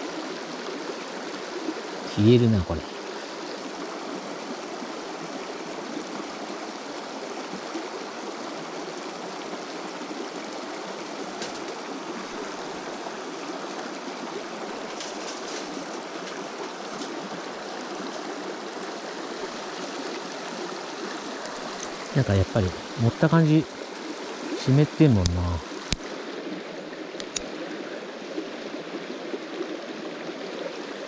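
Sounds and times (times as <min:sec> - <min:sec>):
river water rushing: 0:00.0 - 0:31.0
faint clicks: 0:27.2 - 0:27.6.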